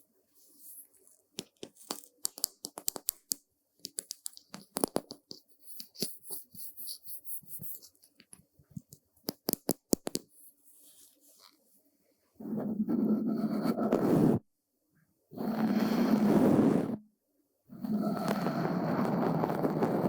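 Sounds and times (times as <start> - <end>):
brush clicks and crackles: 0.4 - 11.7.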